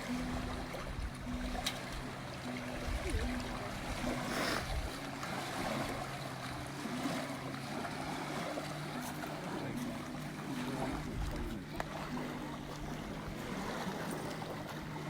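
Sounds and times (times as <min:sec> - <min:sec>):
lake water: 0:00.0 - 0:15.0
wind on microphone: 0:02.7 - 0:05.0, 0:10.8 - 0:11.8.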